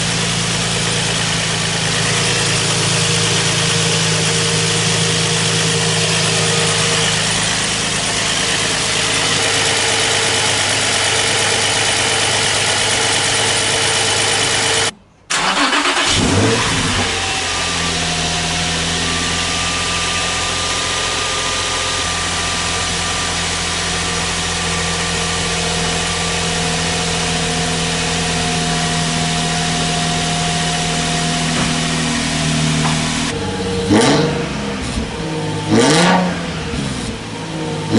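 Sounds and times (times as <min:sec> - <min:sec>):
car engine idling: 0:00.0 - 0:37.9
engine starting and revving: 0:14.5 - 0:18.9, 0:31.4 - 0:37.9.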